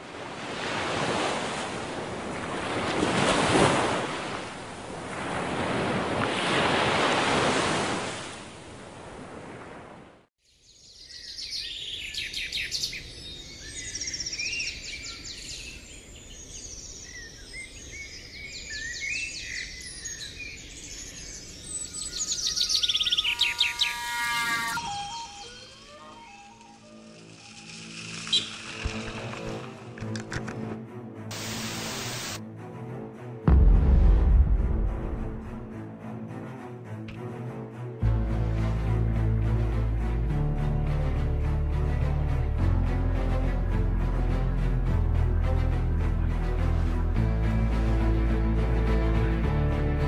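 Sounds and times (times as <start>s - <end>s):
surf washing in: 0.0s - 10.1s
wild birds singing: 10.4s - 29.4s.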